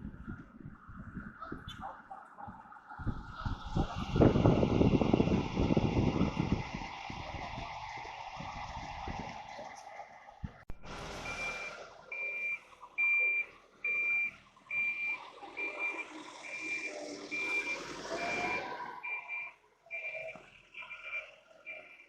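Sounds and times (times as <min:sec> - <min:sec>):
engine running: 0:02.3 - 0:19.5
vehicle reversing alarm beeping: 0:10.7 - 0:22.0.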